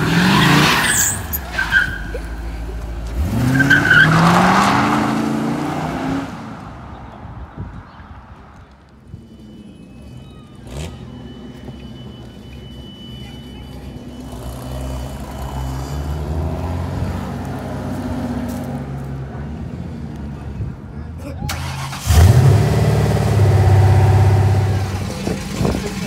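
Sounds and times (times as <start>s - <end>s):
car engine running at low revs: 22.2s - 26.0s.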